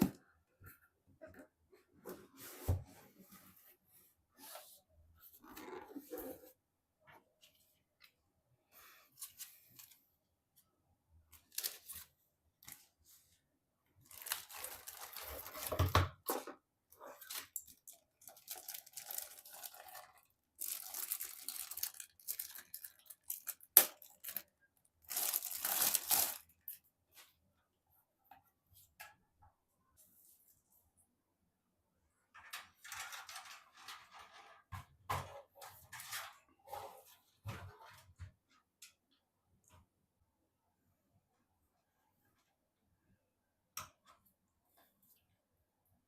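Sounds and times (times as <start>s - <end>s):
packaging torn and crumpled: 14.1s - 15.7s, 18.2s - 24.5s, 25.1s - 26.6s.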